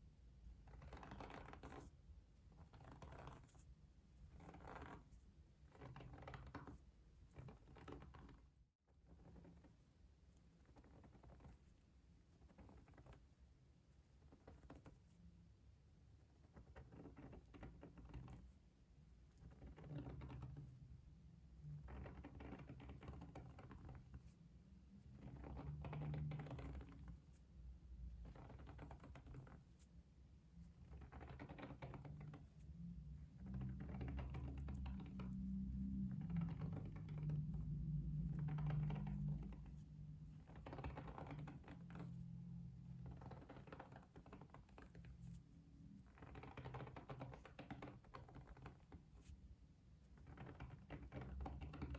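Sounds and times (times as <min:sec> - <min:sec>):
soft rapid clicking and tapping: 0:16.2 - 0:30.0, 0:30.6 - 0:51.9
low rumble: 0:35.0 - 0:40.6.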